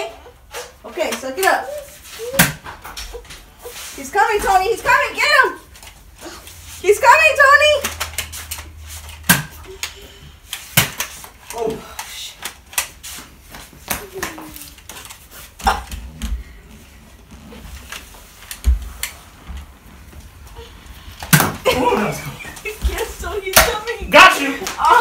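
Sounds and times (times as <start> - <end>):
footsteps scrambling on tiled floor: 21.8 - 24.3.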